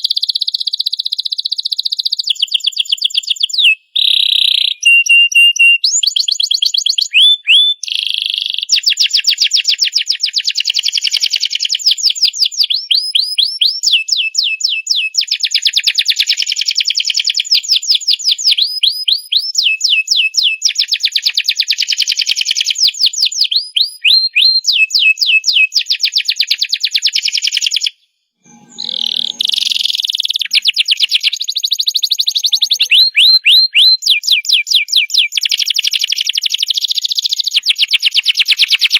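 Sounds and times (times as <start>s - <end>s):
canary singing trills: 0.0s - 9.0s, 28.5s - 38.9s.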